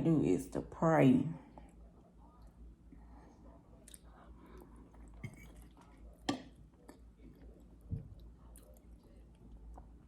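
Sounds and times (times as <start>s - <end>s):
chewing and wet mouth sounds: 3.7s - 10.0s.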